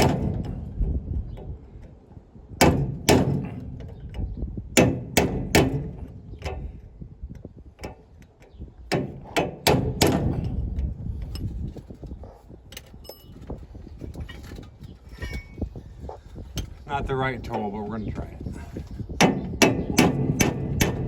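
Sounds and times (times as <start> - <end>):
hammer striking metal punch: 2.6 - 3.8, 4.8 - 6.1, 8.9 - 10.5, 19.2 - 21.0.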